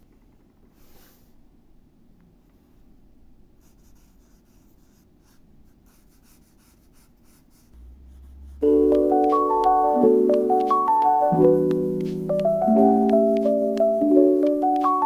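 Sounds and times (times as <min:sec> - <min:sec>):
pen scratching on paper: 0:03.6 - 0:10.0
music with keyboard melody: 0:08.5 - 0:15.0.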